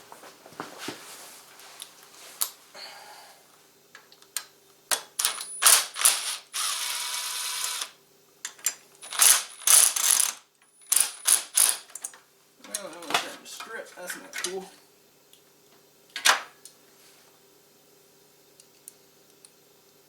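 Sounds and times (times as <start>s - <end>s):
socket ratchet wrench clicking: 9.0s - 11.8s.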